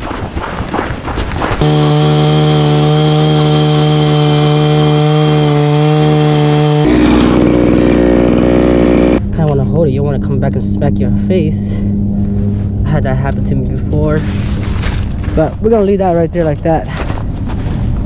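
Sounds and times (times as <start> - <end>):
power ice auger drilling: 1.6 - 9.2.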